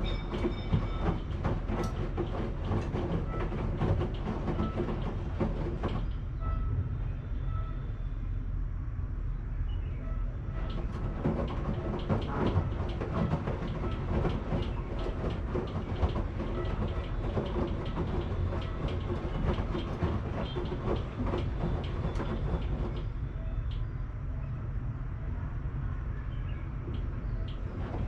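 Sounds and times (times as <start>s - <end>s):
clicks and knocks of tumbling load: 0.0s - 6.2s, 10.6s - 23.2s
washing machine drum rumbling: 0.0s - 6.2s, 10.6s - 23.2s, 26.8s - 28.0s.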